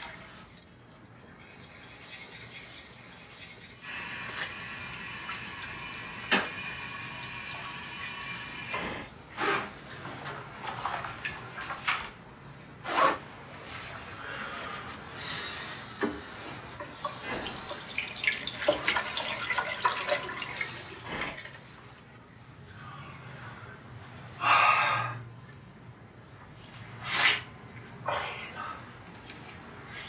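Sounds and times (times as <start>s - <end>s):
water running and splashing: 1.5s - 8.8s, 17.1s - 21.3s.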